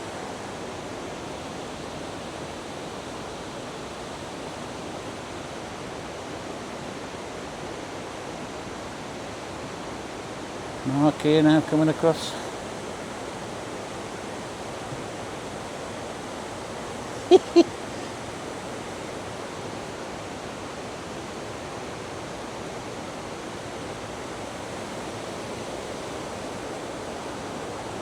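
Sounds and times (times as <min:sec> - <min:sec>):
river water rushing: 0:10.1 - 0:28.0.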